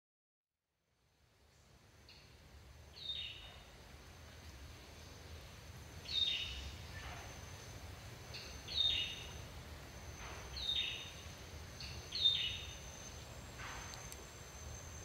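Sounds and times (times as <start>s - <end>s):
bird calling: 11.8s - 13.2s.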